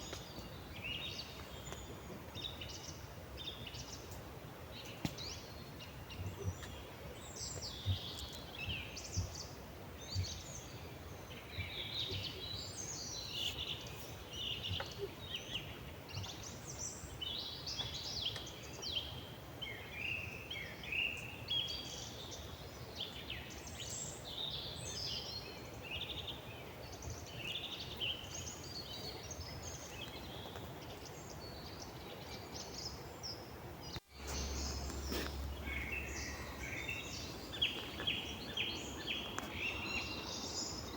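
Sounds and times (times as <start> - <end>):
songbirds singing: 0.0 - 40.9
steady low hum: 34.1 - 40.8.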